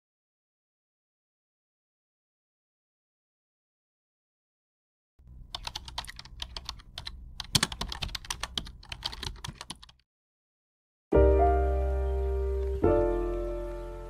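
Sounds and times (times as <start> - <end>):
faint low hum: 5.2 - 9.9
keyboard typing: 5.2 - 10.0.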